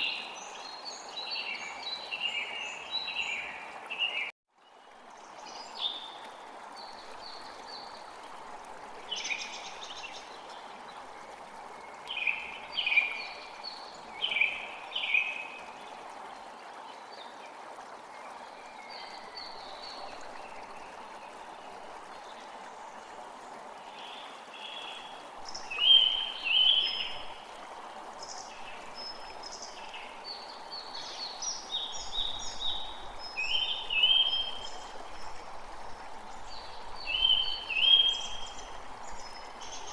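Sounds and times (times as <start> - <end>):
flowing stream: 0.0 - 39.9
songbirds calling: 23.9 - 27.6.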